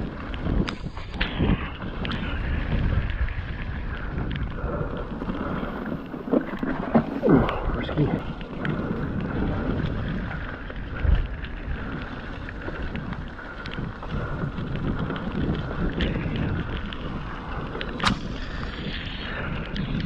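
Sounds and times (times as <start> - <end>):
wind buffeting microphone: 0.0 - 20.0
bike clicks and rattles: 8.3 - 20.0.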